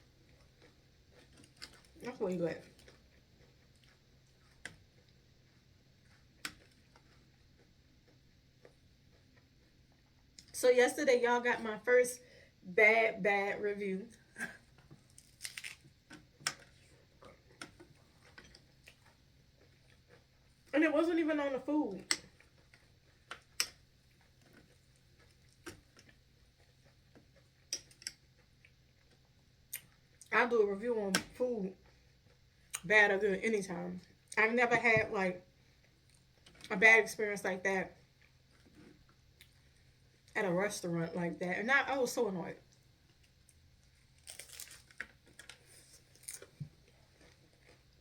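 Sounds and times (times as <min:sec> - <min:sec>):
person chewing crunchy food: 0:00.0 - 0:02.0, 0:02.7 - 0:10.5, 0:14.2 - 0:20.7, 0:22.1 - 0:30.3, 0:42.7 - 0:48.0.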